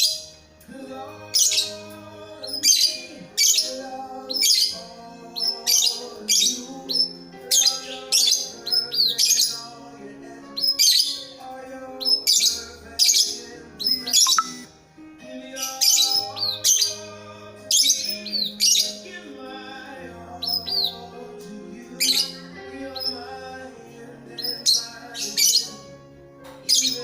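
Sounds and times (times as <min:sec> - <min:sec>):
background music: 0:00.0 - 0:27.0
bird chirping sharply: 0:12.1 - 0:14.7.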